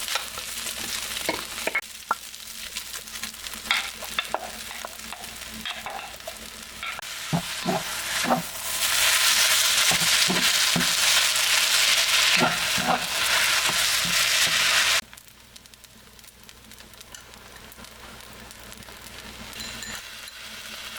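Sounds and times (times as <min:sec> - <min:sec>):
food sizzling in hot pan: 0:00.0 - 0:20.9
utensil scraping pan: 0:03.7 - 0:14.9.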